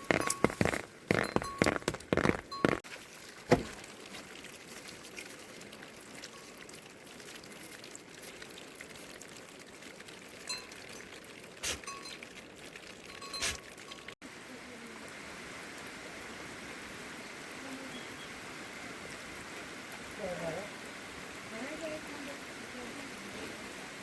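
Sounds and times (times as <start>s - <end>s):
steady rain falling: 0.0s - 2.8s, 13.9s - 24.0s.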